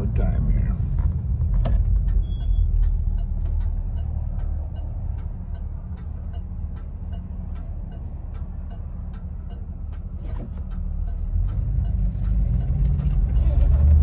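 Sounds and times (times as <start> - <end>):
car engine low rumble: 0.0 - 14.0
regular sharp ticking: 1.5 - 14.0.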